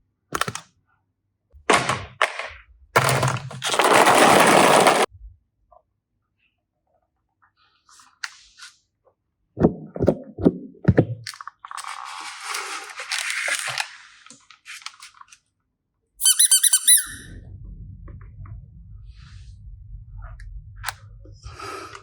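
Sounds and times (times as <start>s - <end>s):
crackling rustling noise: 11.5s - 15.5s
high-pitched chirping squeaks: 16.2s - 17.3s.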